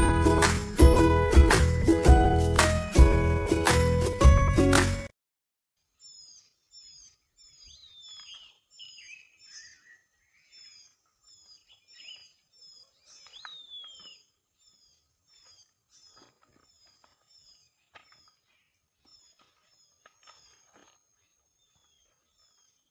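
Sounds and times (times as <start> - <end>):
high falling bird chirps: 5.9 - 20.8.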